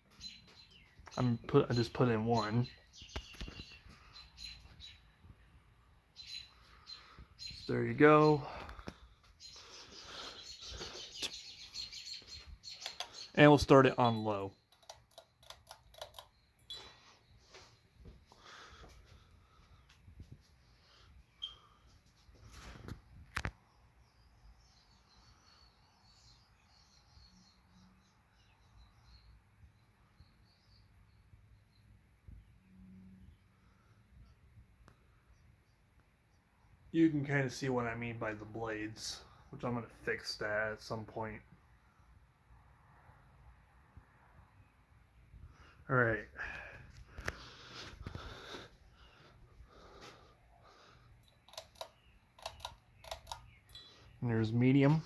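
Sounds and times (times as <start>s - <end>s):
pull chain clicks: 14.0s - 16.8s, 51.2s - 53.9s.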